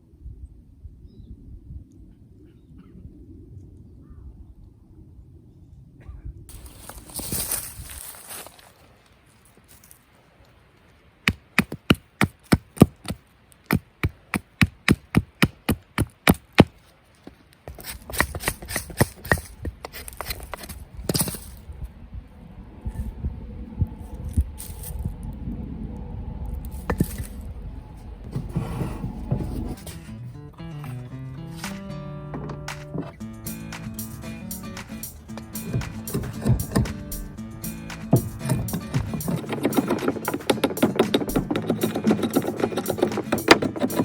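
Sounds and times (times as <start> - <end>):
rustling and crunching: 6.5 - 22.0, 24.1 - 25.3, 26.5 - 33.2
hatchet chopping wood: 11.3 - 16.7, 17.7 - 21.3, 35.6 - 37.2, 38.0 - 44.0
wood knocking: 31.6 - 33.2, 34.8 - 37.3, 37.9 - 44.0.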